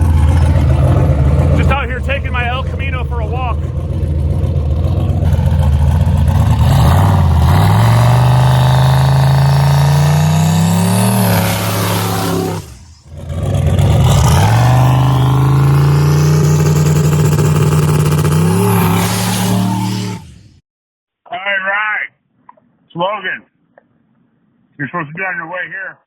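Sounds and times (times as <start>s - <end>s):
car engine accelerating hard: 0.0s - 20.5s
high rising turbo whine: 0.0s - 20.6s.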